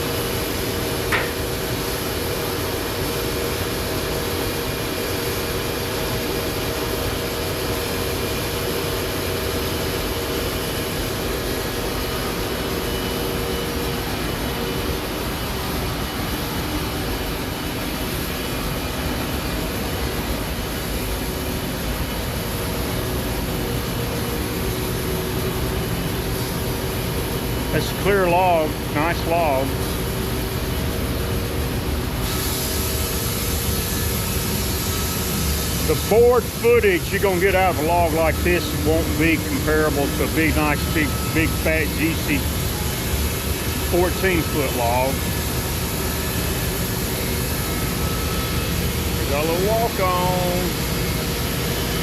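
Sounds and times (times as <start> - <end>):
sawmill cutting log: 35.6 - 42.5, 43.8 - 45.3.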